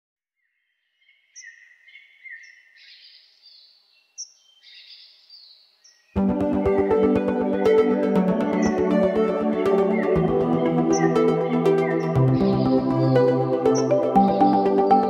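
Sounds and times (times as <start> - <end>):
birds chirping: 0.4 - 15.0
loud music with steady beat: 6.2 - 15.0.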